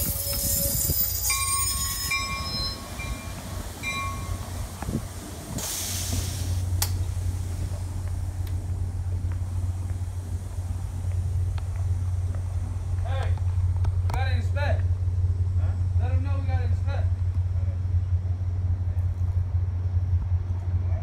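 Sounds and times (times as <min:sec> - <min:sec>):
train wheel squeals: 0:00.0 - 0:04.5
low train rumble: 0:00.0 - 0:21.0
hiss: 0:04.6 - 0:08.2.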